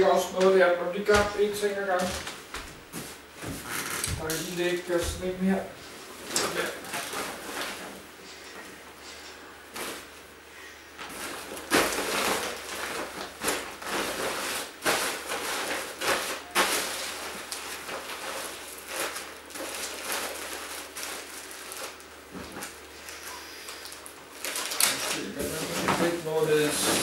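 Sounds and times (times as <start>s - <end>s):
rustling of packing: 6.2s - 10.2s, 11.0s - 27.0s.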